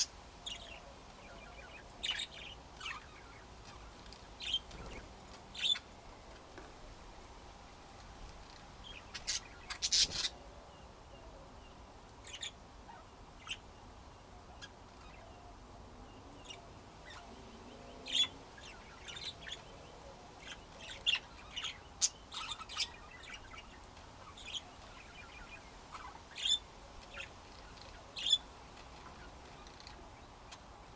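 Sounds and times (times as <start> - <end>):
budgerigars chirping: 8.9 - 10.4, 20.4 - 28.5.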